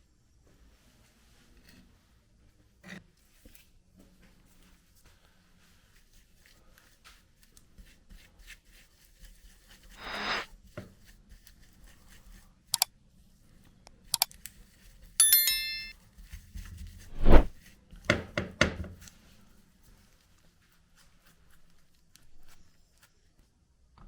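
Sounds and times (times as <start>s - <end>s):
metal part clinking and ringing: 15.2s - 15.9s.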